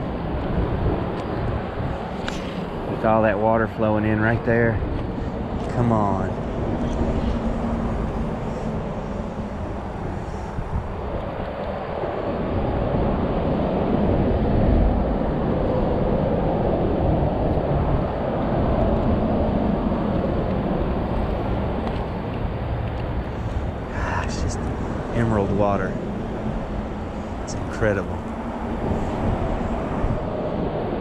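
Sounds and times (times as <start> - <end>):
creek water rushing into pool: 20.0 - 31.0.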